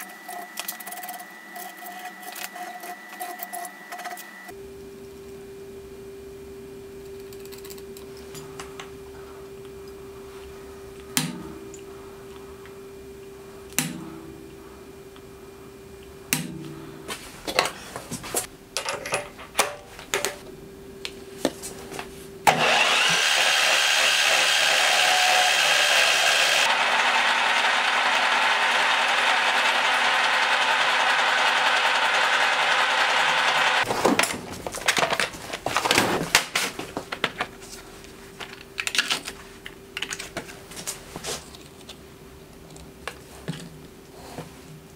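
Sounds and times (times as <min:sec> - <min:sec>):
drill boring into steel: 0:22.5 - 0:33.8.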